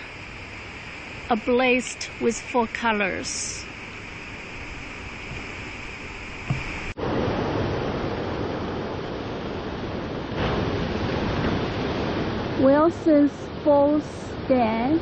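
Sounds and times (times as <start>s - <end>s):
rushing waterfall: 0.0s - 15.0s
short thump: 6.4s - 6.9s.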